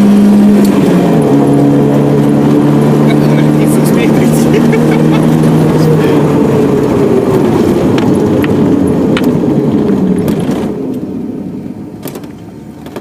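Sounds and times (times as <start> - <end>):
vehicle driving on dirt road: 0.0 - 13.0.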